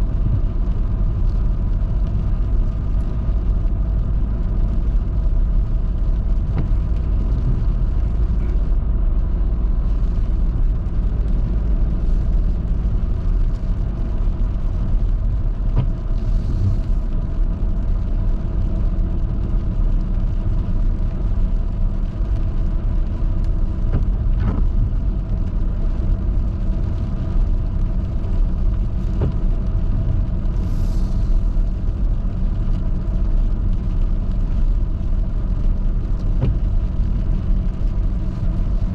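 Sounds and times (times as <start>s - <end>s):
car engine and road rumble: 0.0s - 38.9s
brief hisses: 30.6s - 31.4s.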